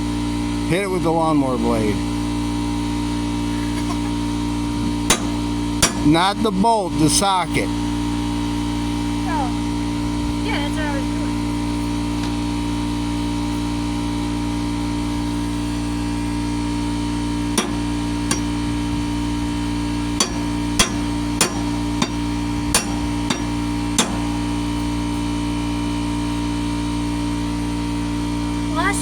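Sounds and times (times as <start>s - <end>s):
steady hum: 3.4s - 29.0s
sharp metal taps: 5.1s - 6.3s, 17.6s - 18.9s, 20.1s - 24.8s.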